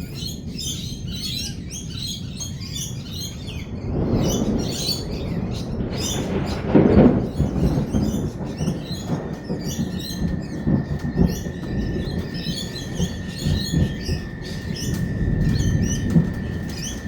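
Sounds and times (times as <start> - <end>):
thunder rumbling: 0.0 - 17.0
parrots chirping and chattering: 4.3 - 17.0.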